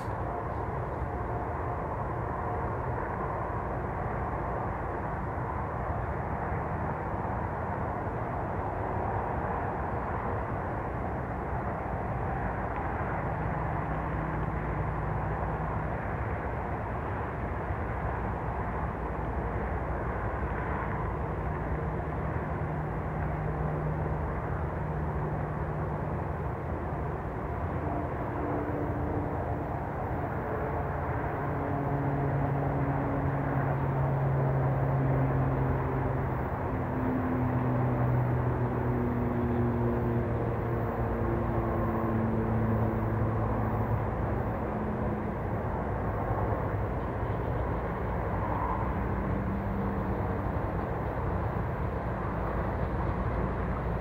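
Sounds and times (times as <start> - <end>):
low hum: 0.0 - 54.0
train rumbling past: 19.4 - 54.0.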